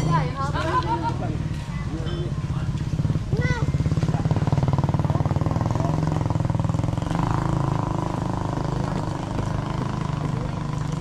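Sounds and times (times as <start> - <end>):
small engine puttering: 3.6 - 11.0.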